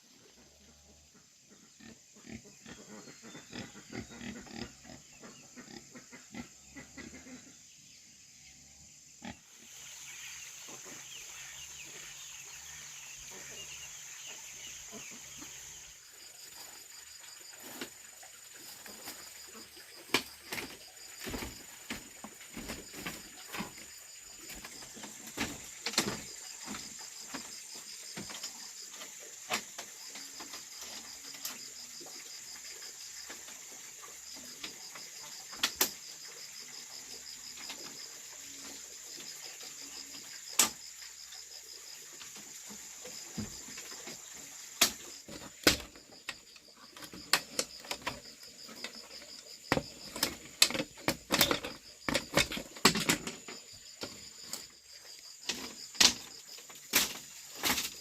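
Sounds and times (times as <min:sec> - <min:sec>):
insects trilling: 0:00.0 - 0:58.0
sharp knocks and clatter: 0:44.8 - 0:54.7, 0:55.4 - 0:58.0.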